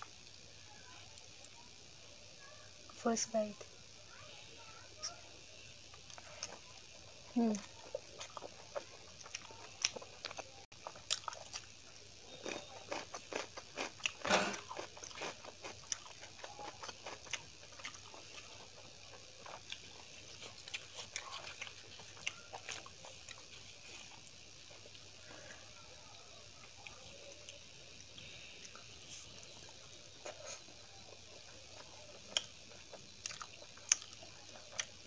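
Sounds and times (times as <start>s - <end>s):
wet chewing mouth clicks: 29.6s - 35.0s.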